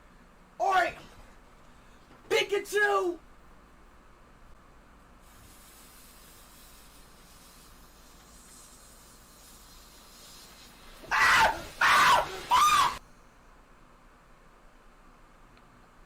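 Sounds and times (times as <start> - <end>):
person screaming: 11.1 - 13.0.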